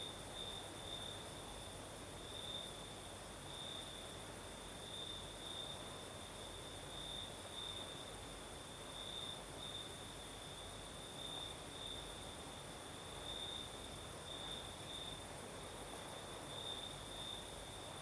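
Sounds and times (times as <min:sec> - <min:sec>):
crickets trilling: 0:00.0 - 0:18.0
faint ticks: 0:04.0 - 0:05.6.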